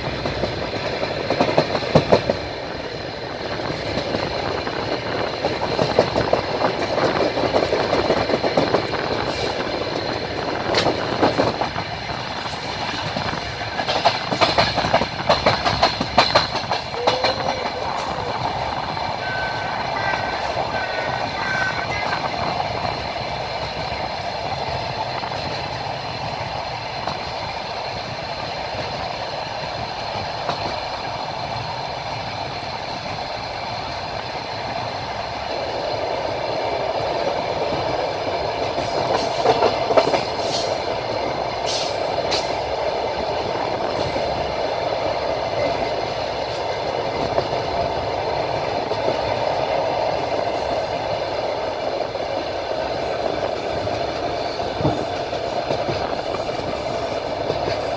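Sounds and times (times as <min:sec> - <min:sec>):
train wheels rumbling on rails: 0:00.0 - 0:57.9.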